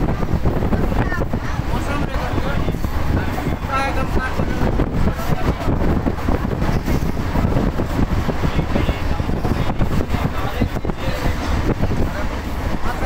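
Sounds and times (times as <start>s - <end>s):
train rumbling from inside coach: 0.0s - 13.0s
wheels and carriage rattling: 0.0s - 13.0s.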